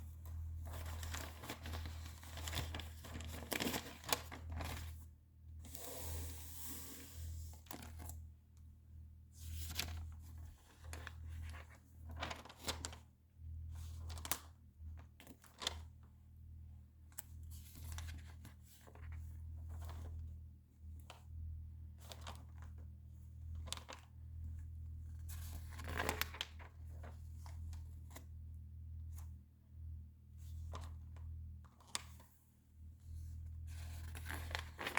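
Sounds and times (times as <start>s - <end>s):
magazine pages rustling: 0.6s - 5.0s, 9.4s - 13.0s, 25.3s - 26.7s, 33.8s - 34.9s.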